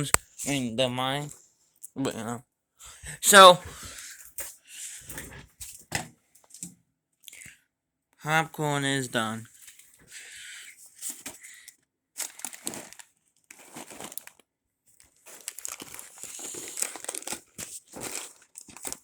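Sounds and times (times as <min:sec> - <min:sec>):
popcorn bag crinkling: 0:12.2 - 0:19.0.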